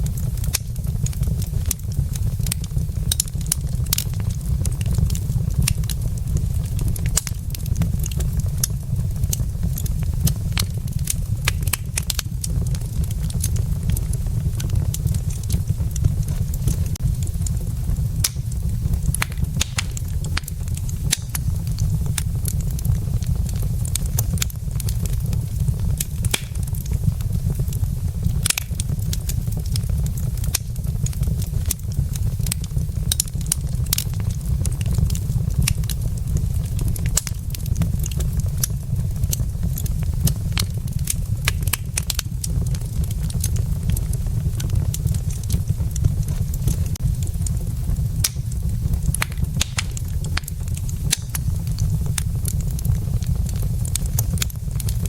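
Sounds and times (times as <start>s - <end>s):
low rumble: 0.0s - 55.0s
wood fire crackling: 0.0s - 55.0s
sharp pops and snaps: 0.1s - 25.2s, 25.8s - 27.7s, 28.4s - 36.3s, 37.0s - 55.0s.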